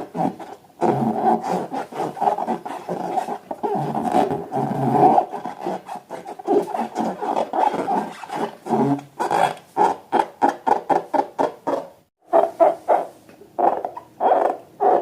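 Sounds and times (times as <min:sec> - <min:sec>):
balloons being rubbed: 0:00.0 - 0:10.6.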